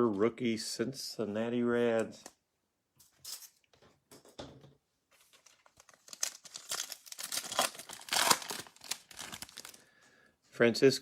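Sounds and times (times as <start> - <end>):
foil wrapper tearing and crinkling: 5.4 - 9.8.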